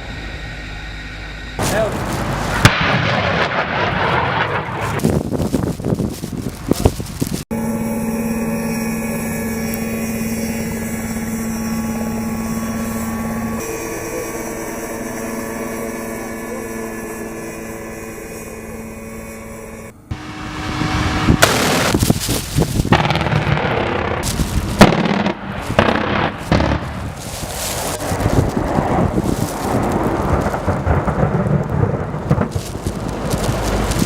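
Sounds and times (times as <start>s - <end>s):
engine or turbine hum: 0.0s - 5.0s, 7.5s - 34.0s
loud weapons fire: 1.6s - 5.0s, 20.5s - 22.0s, 22.9s - 27.0s.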